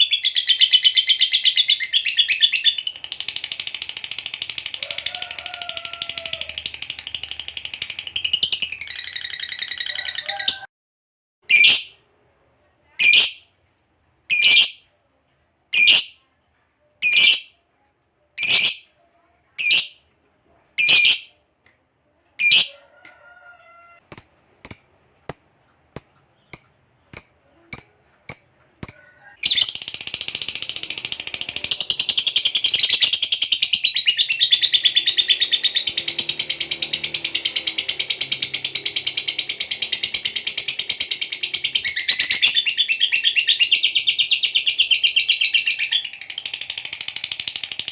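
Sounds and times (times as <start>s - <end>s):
lovebird rapid chatter trill: 2.6s - 10.3s, 24.1s - 33.7s, 34.3s - 42.7s, 45.6s - 47.9s.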